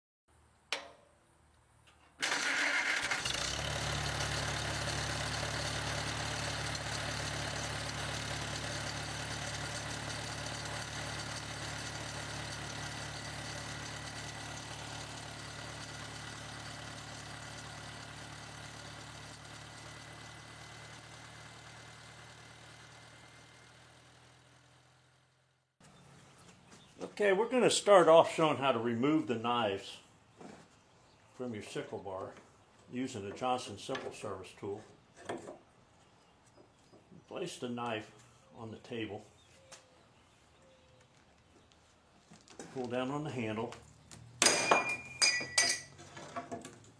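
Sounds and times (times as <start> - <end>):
engine running: 1.9 - 27.2.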